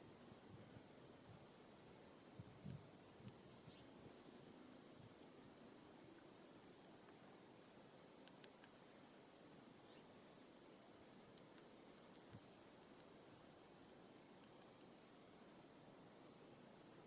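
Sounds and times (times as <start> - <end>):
bird calling faintly: 11.0 - 16.0.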